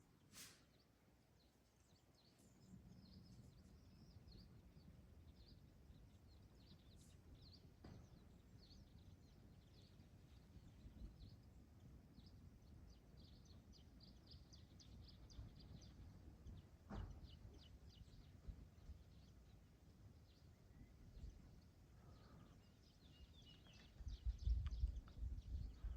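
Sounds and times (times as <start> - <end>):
faint birds chirping: 0.0 - 25.9
low wind rumble: 7.6 - 25.9.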